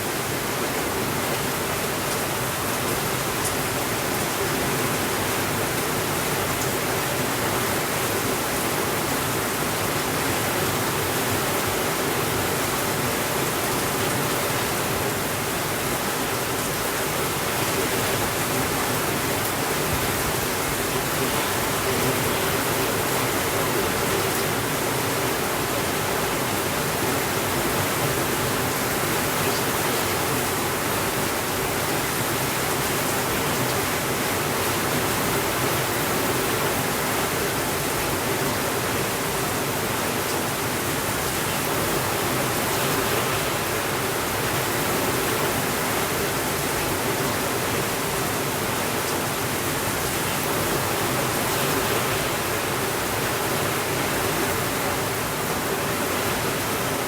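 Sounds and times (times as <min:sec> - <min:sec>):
steady rainfall hiss: 0:00.0 - 0:57.0.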